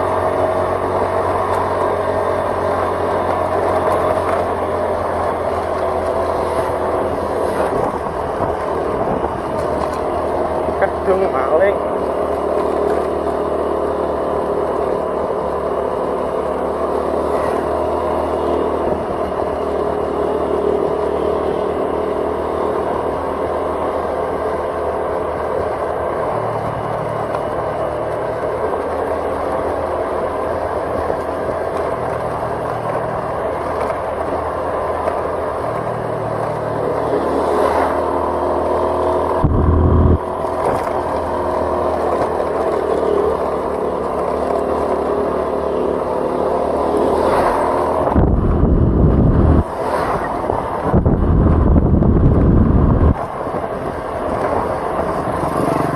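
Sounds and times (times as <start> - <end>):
road and wind noise: 0.0 - 55.9
vehicle engine running: 0.0 - 55.9
loud low rumble: 39.4 - 40.3, 48.1 - 49.7.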